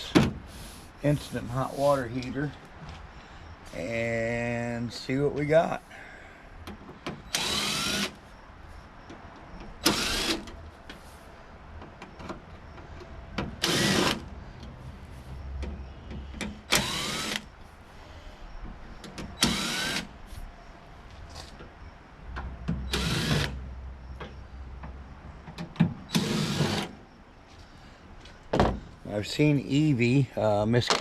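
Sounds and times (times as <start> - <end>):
power drill spinning up: 7.3 - 8.2.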